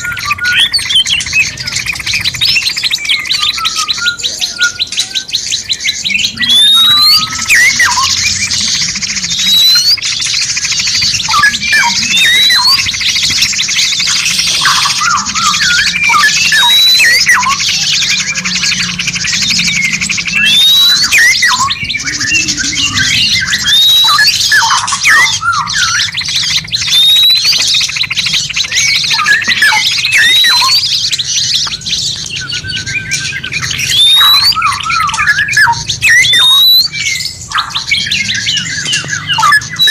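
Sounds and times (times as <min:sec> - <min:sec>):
bird chirps and squawks: 0:00.0 - 0:39.9
songbirds trilling: 0:00.0 - 0:39.9
bird rising whistle: 0:06.1 - 0:10.1, 0:10.8 - 0:28.0, 0:28.6 - 0:30.9, 0:33.6 - 0:39.9.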